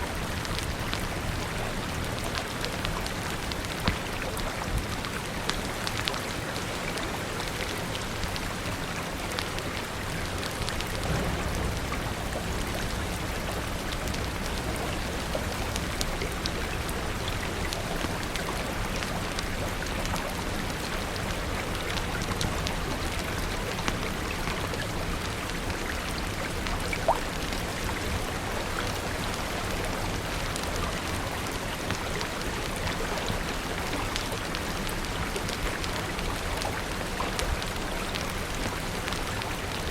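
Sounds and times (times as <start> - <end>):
steady rain falling: 0.0 - 39.9
wood fire crackling: 0.1 - 39.9
low rumble: 10.7 - 17.4.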